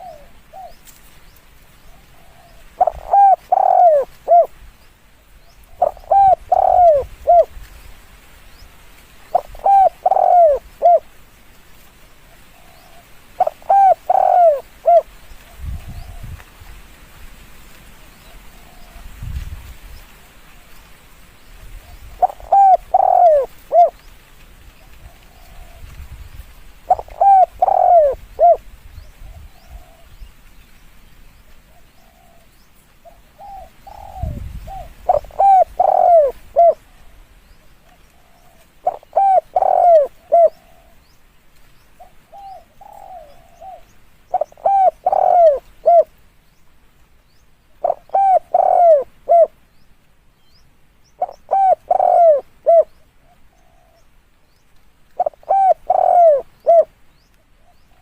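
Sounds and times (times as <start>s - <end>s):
dove cooing: 0.0s - 1.0s, 1.9s - 4.6s, 5.6s - 7.6s, 9.3s - 11.1s, 12.2s - 16.4s, 21.8s - 24.1s, 24.8s - 26.0s, 26.8s - 30.2s, 31.7s - 41.1s, 42.0s - 46.2s, 47.8s - 49.6s, 51.2s - 54.1s, 55.2s - 56.9s.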